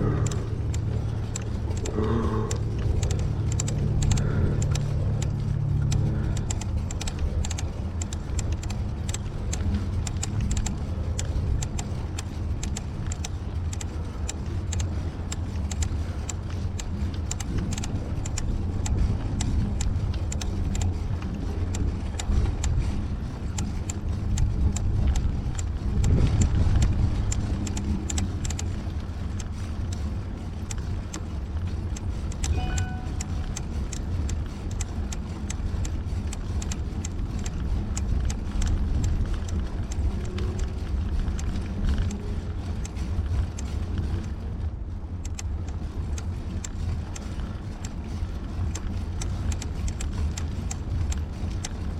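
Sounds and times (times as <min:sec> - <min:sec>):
road rumble: 0:00.0 - 0:51.9
small rattles and clicks: 0:00.0 - 0:51.9
short tone: 0:32.5 - 0:33.6.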